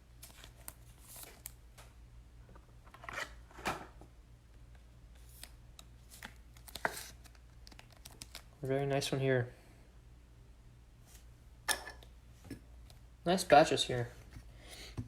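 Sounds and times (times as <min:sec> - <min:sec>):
trading cards rustling and clicking: 0:05.2 - 0:08.6.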